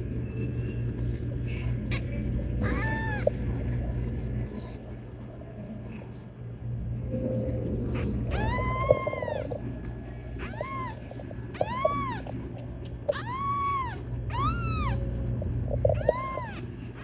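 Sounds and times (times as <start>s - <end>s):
steady low hum: 0.0s - 17.0s
kitten meowing: 2.6s - 3.3s, 8.3s - 9.5s, 10.4s - 12.3s, 13.1s - 15.0s, 15.9s - 16.6s.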